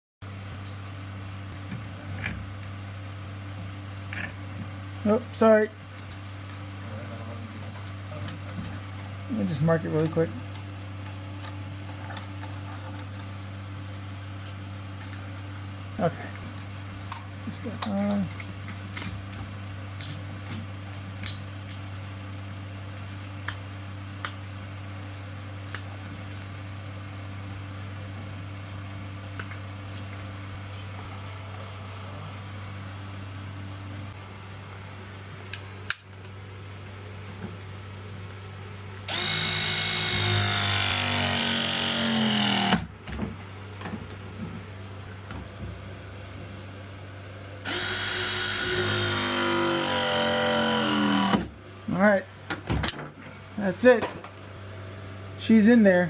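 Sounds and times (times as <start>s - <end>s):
pressing tool motor whine: 39.1s - 42.9s, 47.7s - 51.5s.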